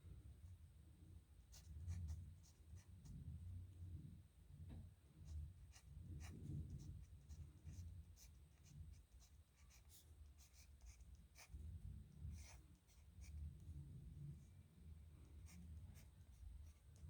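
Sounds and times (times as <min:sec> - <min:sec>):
pen scratching on paper: 0:05.7 - 0:13.6, 0:15.4 - 0:17.0.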